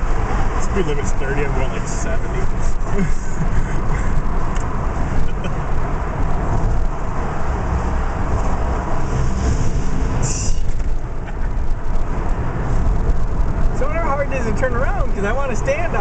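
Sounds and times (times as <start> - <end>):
car engine rumble: 0.0 - 16.0
tyre and wind noise: 2.1 - 13.9
brief high hiss: 10.2 - 10.7.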